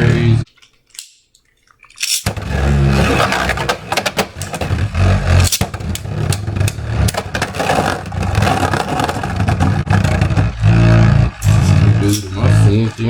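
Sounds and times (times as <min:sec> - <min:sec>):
spinning tops clacking together: 0:02.0 - 0:08.1
spinning tops whirring and scraping: 0:02.0 - 0:13.0.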